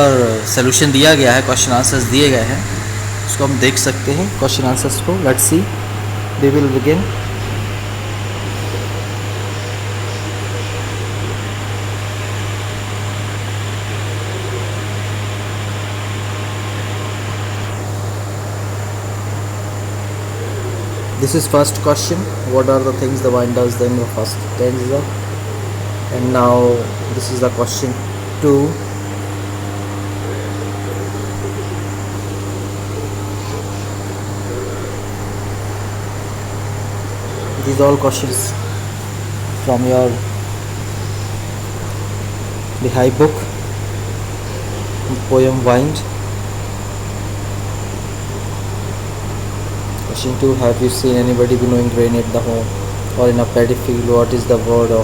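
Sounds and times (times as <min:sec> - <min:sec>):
fan hum and hiss: 0:00.0 - 0:55.0.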